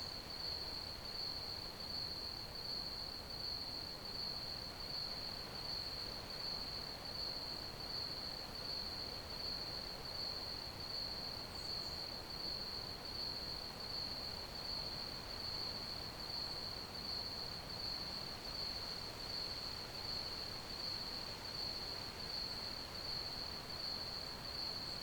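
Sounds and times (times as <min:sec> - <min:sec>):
crickets chirping: 0:11.0 - 0:25.0.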